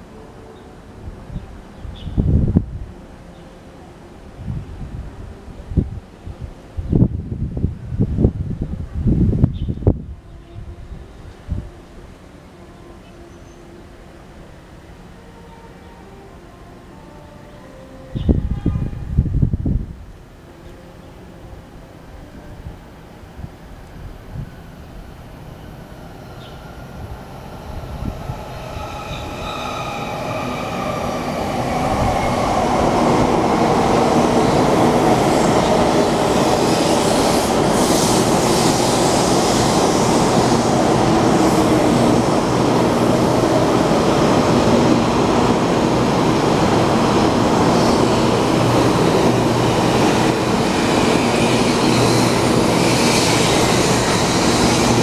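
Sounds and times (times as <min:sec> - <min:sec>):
rush of train wheels and air: 0:01.0 - 0:03.2, 0:04.2 - 0:12.6, 0:18.1 - 0:20.4, 0:21.3 - 0:55.0
train whine dropping in pitch: 0:24.0 - 0:55.0.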